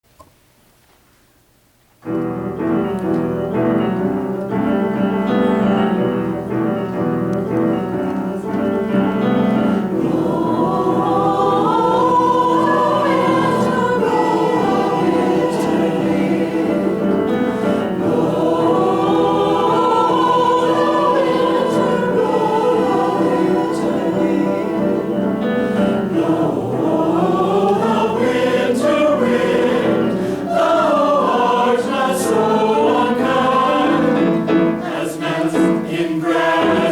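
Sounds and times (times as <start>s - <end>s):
piano accompaniment: 2.0s - 36.9s
choir singing: 8.4s - 36.9s.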